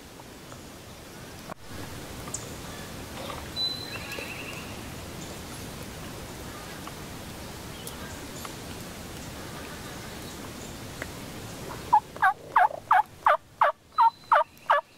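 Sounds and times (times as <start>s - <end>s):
steady woodland hiss: 0.0s - 14.9s
small bird whistle and trill: 3.6s - 4.7s, 13.9s - 14.9s.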